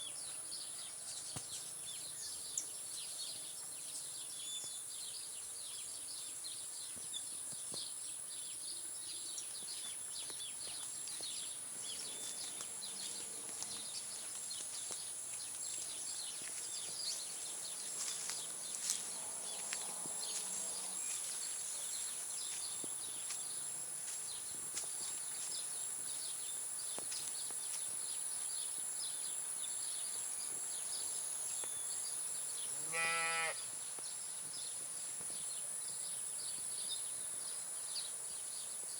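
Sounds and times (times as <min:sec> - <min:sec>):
birds chirping: 0:06.8 - 0:34.8.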